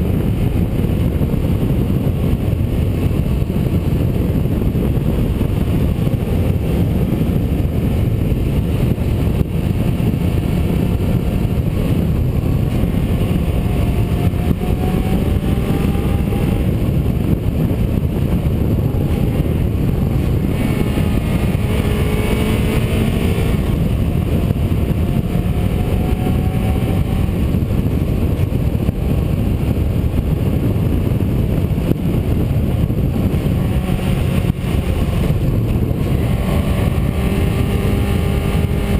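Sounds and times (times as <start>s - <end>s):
road and wind noise: 0.0s - 38.9s.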